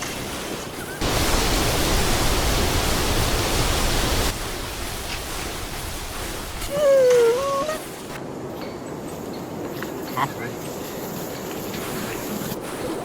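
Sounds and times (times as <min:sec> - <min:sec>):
steady rushing noise: 0:00.0 - 0:06.7.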